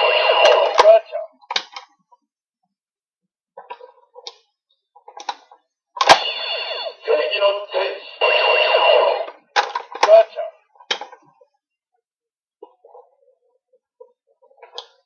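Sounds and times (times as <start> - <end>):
electronic toy sound effect: 6.0 - 9.4
short electronic bursts: 6.1 - 9.3.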